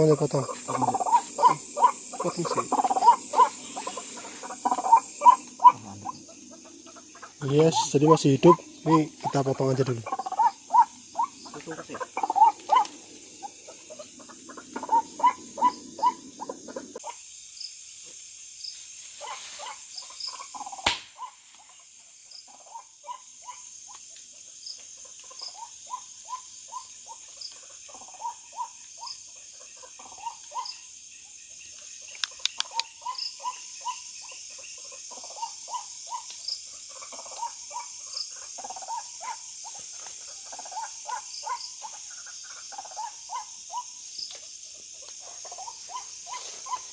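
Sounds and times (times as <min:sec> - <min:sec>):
crickets trilling: 0:00.0 - 0:46.9
frogs croaking: 0:00.0 - 0:46.9
sharp click: 0:20.8 - 0:21.1, 0:32.2 - 0:32.9.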